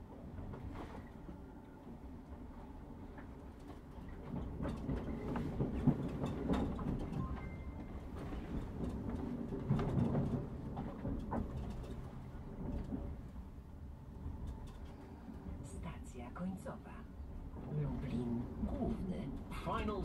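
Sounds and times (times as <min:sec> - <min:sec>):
train wheels rumbling on rails: 0:00.0 - 0:20.0
wheels clicking over rail joints: 0:03.2 - 0:13.5.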